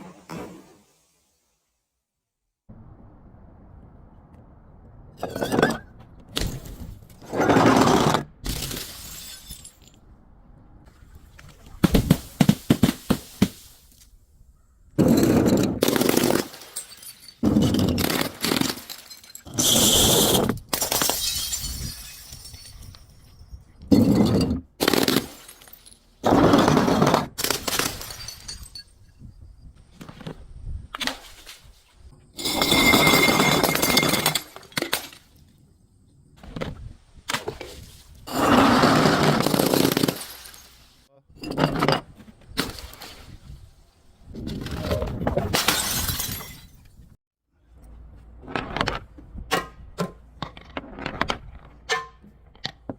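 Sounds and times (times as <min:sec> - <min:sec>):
glass breaking and crunching: 0:08.4 - 0:10.0, 0:15.0 - 0:23.4, 0:27.4 - 0:29.0, 0:32.4 - 0:35.2, 0:39.2 - 0:41.8, 0:45.6 - 0:47.0.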